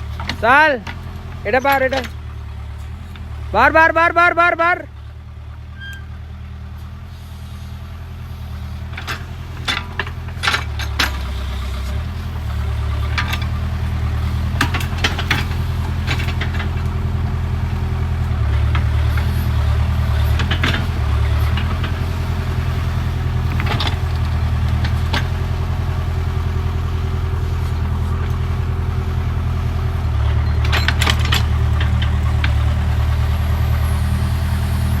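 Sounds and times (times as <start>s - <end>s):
backhoe diesel engine running: 0.0s - 35.0s
sharp metal clanks and clicks: 9.0s - 11.4s, 14.6s - 16.9s, 30.4s - 32.6s.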